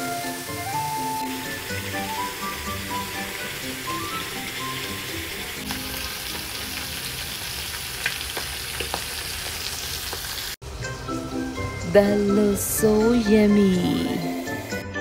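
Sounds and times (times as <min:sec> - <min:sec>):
prawns sizzling in oil: 0:00.0 - 0:14.8.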